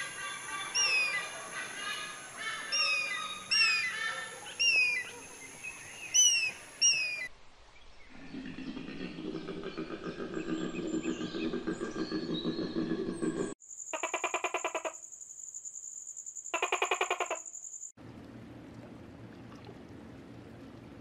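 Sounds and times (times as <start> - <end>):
birds chirping: 0.0 - 7.3, 7.9 - 14.9.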